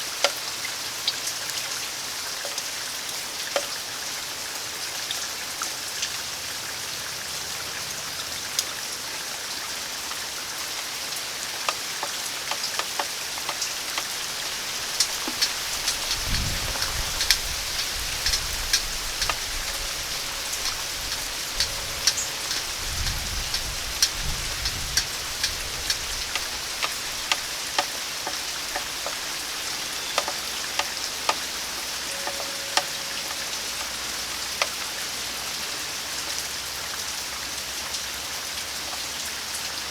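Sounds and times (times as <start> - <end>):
steady rain falling: 0.0 - 39.9
drips striking hard surface: 11.5 - 35.4
low rumble of wind: 13.8 - 32.1.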